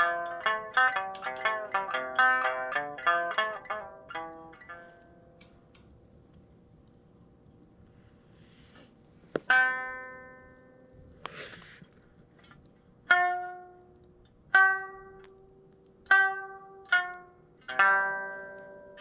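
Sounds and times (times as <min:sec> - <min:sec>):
plucked lute notes: 0:00.0 - 0:05.9, 0:09.3 - 0:11.8, 0:12.4 - 0:19.0.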